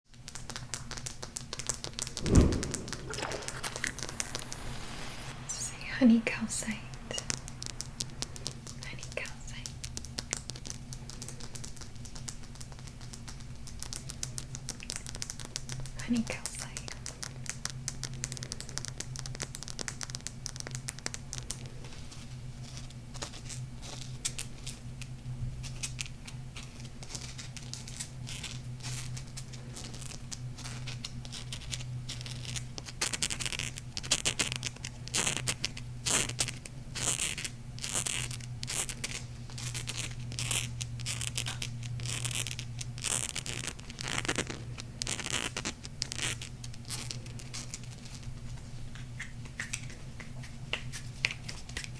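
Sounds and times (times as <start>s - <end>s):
low hum: 2.2s - 9.4s
fingernails scratching on crystal: 36.1s - 47.1s.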